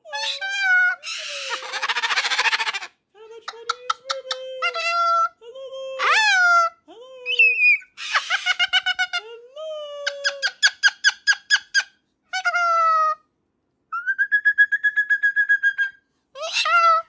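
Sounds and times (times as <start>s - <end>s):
parrot squeaky whistly calls: 7.4s - 8.6s, 13.9s - 17.0s.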